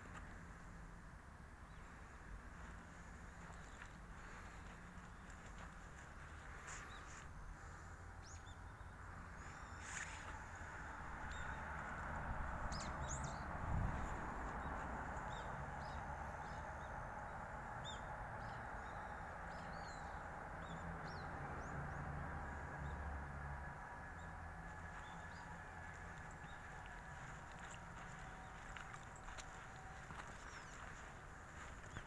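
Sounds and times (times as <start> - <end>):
outdoor background hum: 0.0 - 32.0
small birds chirping: 1.6 - 10.4, 25.0 - 32.0.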